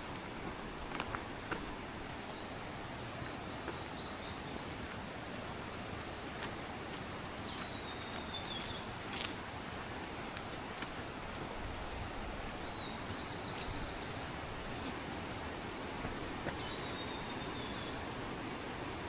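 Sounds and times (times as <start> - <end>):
footsteps on a trail: 0.0 - 16.9.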